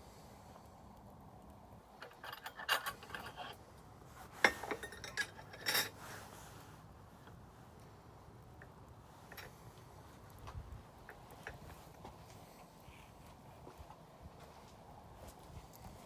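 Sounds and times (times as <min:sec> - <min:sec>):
campfire crackling and popping: 0:00.6 - 0:02.0, 0:07.0 - 0:13.4.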